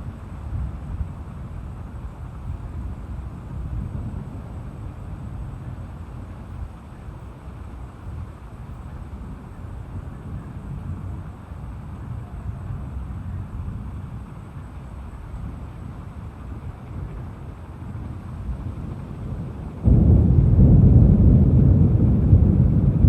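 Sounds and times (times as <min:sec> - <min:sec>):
rain and wind rushing: 0:00.0 - 0:06.3, 0:15.3 - 0:23.0
low rumble: 0:17.1 - 0:23.0.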